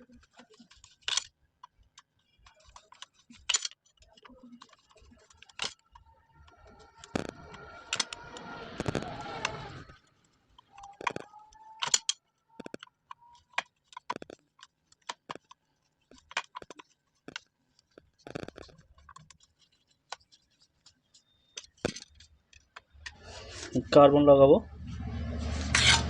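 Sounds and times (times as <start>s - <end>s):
metal tools clicking and scraping: 2.0s - 6.0s, 10.6s - 15.5s.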